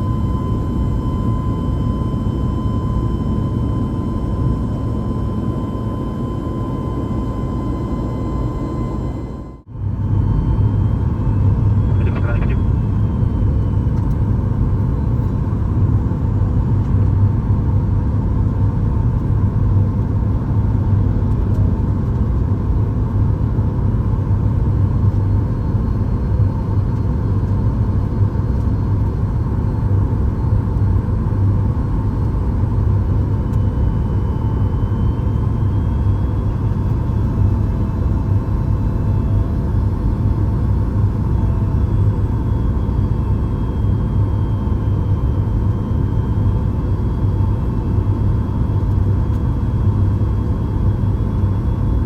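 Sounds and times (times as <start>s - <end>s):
airliner cabin rumble: 0.0s - 17.2s.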